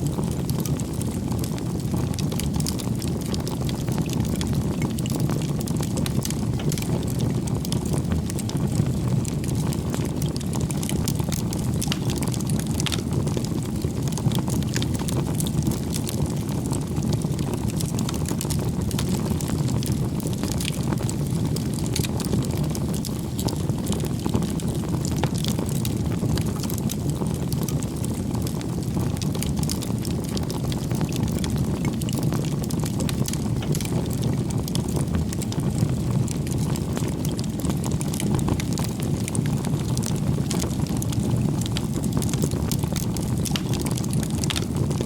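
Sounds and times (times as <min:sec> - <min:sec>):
campfire flame rushing: 0:00.0 - 0:45.0
fire crackles and pops: 0:00.0 - 0:45.0.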